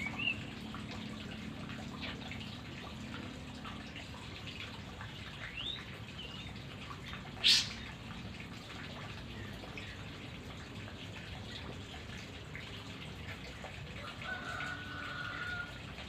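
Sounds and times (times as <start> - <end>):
watery background hiss: 0.0 - 16.0.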